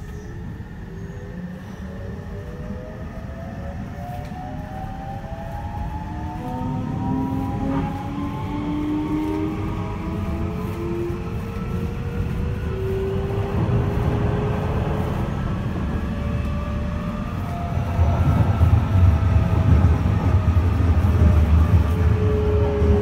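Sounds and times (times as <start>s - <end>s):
train wheels rumbling on track: 3.7s - 23.0s.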